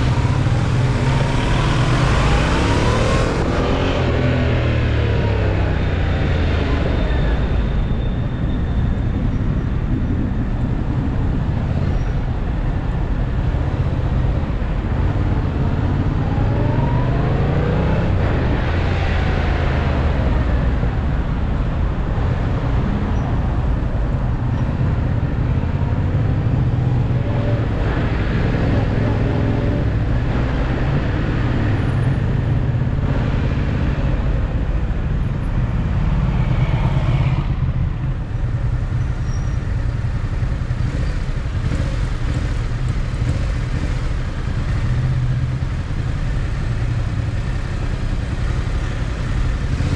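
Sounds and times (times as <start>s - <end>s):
low traffic rumble: 0.0s - 49.9s
motorcycle engine accelerating: 39.8s - 49.9s.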